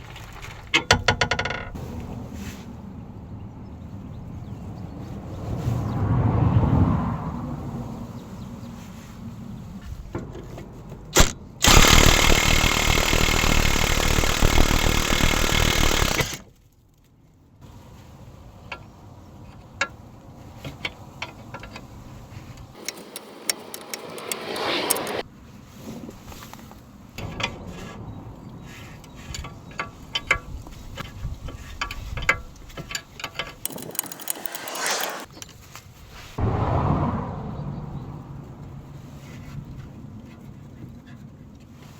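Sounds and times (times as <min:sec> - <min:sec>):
power wrench running: 0:11.2 - 0:16.4, 0:22.8 - 0:25.2, 0:33.6 - 0:35.3
hand tools and metal clinking: 0:22.8 - 0:25.2, 0:29.0 - 0:35.6.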